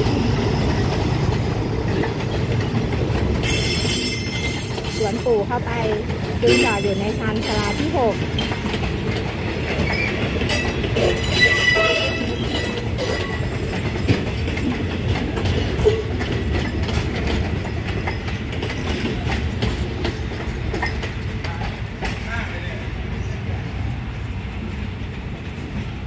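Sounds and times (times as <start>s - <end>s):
wheels and couplings knocking: 0.0s - 22.3s
train carriages rumbling past: 0.0s - 26.0s
faint high wheel squeal: 3.4s - 5.1s.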